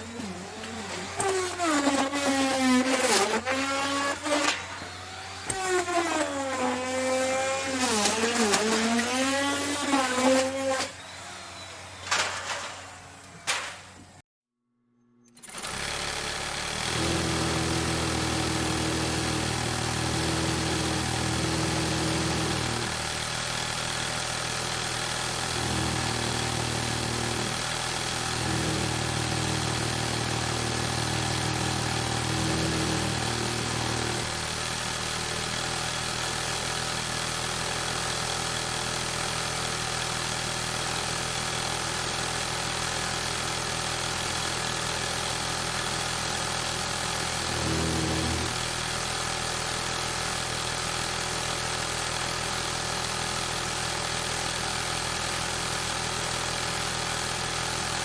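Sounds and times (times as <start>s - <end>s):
engine running: 0.0s - 14.2s.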